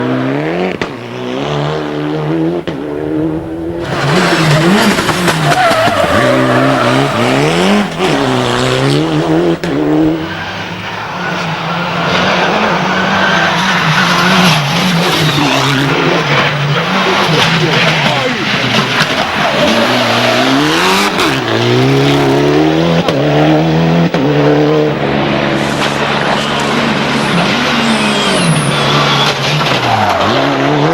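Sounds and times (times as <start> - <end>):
rally car engine revving: 0.0 - 30.9.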